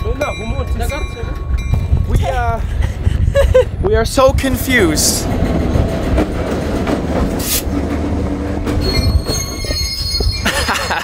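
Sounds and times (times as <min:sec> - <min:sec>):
freight train rumbling on rails: 0:00.0 - 0:11.0
steel wheels squealing on rails: 0:07.3 - 0:11.0.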